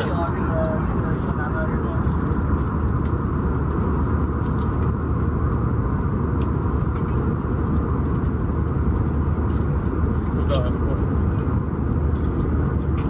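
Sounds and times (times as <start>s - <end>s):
airliner engines roaring: 0.0s - 13.0s.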